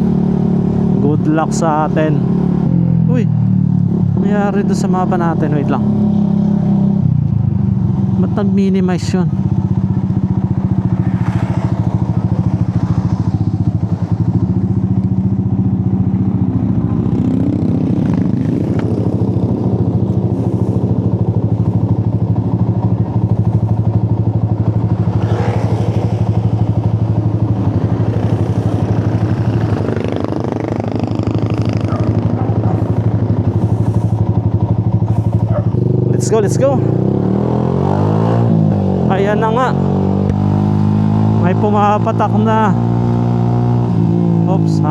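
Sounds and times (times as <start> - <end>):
scooter engine idling: 9.4 - 36.1.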